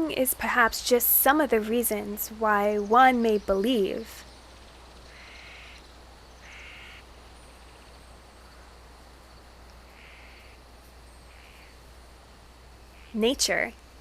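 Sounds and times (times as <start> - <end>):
insects buzzing: 0.0 - 14.0
raspy animal calls: 5.1 - 7.2, 9.8 - 10.6, 11.2 - 11.8, 12.9 - 13.3.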